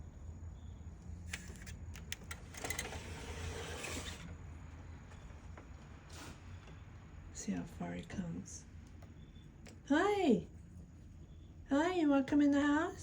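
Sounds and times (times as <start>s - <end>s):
door scraping open: 2.3s - 4.4s.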